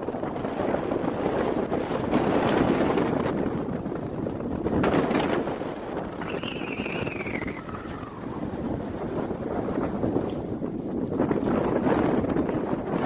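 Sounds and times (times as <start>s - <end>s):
wind buffeting microphone: 0.0s - 13.0s
high whistled note sliding down: 6.2s - 8.4s.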